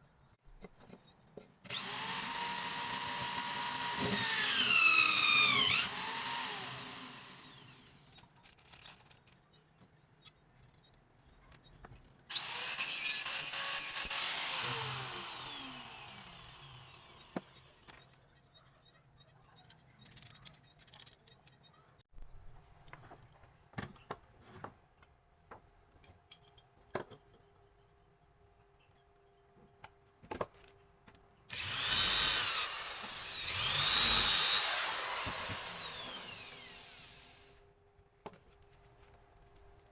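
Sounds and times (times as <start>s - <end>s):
power tool cutting wood: 1.7s - 8.0s, 12.3s - 17.8s, 31.5s - 37.6s.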